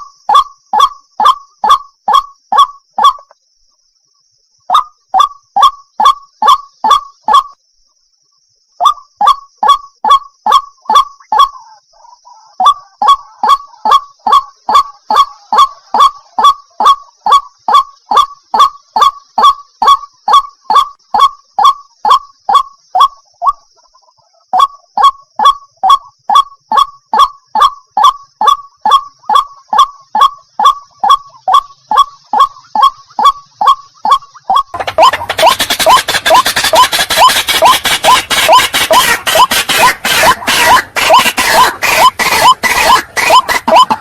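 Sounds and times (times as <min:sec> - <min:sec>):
waterhen calling: 0:08.8 - 0:24.7, 0:27.6 - 0:44.0.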